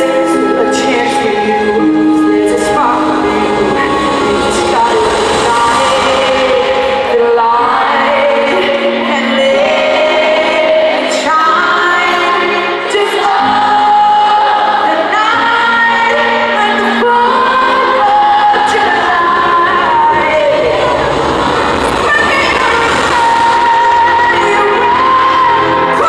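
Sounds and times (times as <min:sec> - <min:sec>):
woman singing live pop song: 0:00.0 - 0:26.0
band playing: 0:00.4 - 0:09.0.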